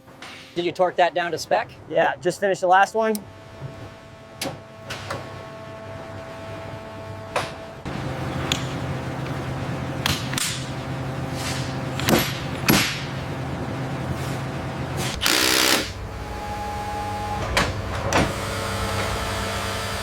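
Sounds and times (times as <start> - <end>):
machinery hum: 0.0 - 20.0
short noisy burst: 15.1 - 17.6.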